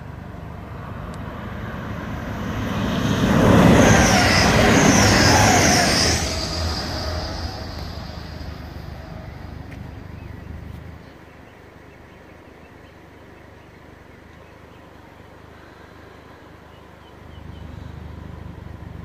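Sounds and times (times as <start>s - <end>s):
passenger train going away: 0.0s - 10.9s
low background rumble: 0.0s - 12.2s.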